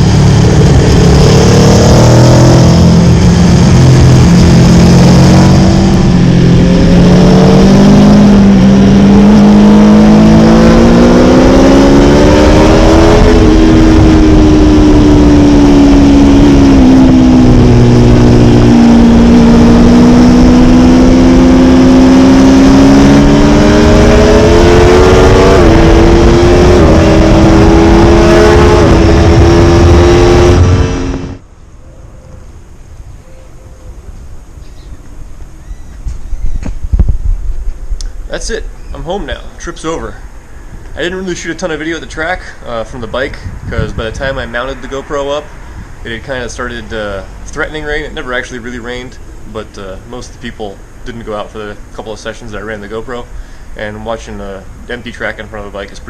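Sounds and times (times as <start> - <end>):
motorcycle engine: 0.0 - 52.3
wind and road noise: 0.0 - 56.0.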